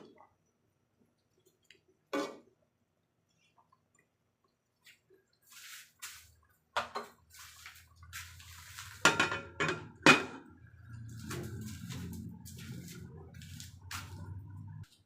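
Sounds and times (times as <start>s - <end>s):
cookware scraping and shuffling: 6.8s - 14.8s
low steady hum: 7.4s - 15.0s.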